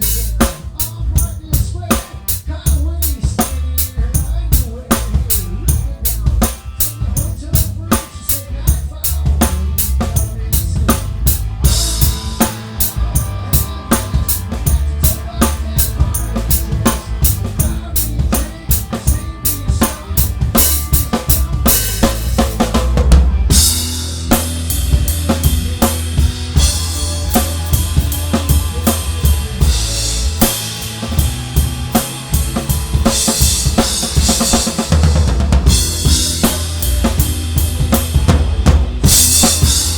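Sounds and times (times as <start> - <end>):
live band playing: 0.0 - 39.9
cymbals washing: 23.5 - 39.9.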